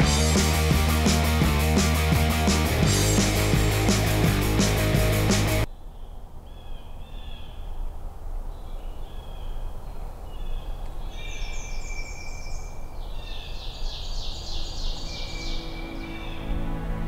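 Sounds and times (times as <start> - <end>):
songbirds singing: 5.7 - 16.6.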